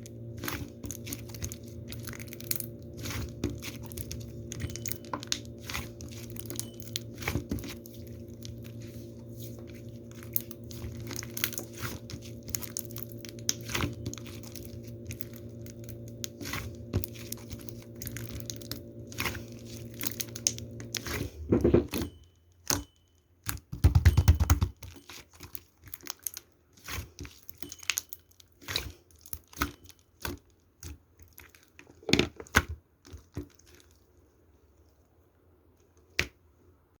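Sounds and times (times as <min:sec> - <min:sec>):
hands squishing slime: 0:00.0 - 0:21.9, 0:23.4 - 0:34.9
deep handling noise: 0:00.0 - 0:22.1
steady low hum: 0:00.0 - 0:22.3.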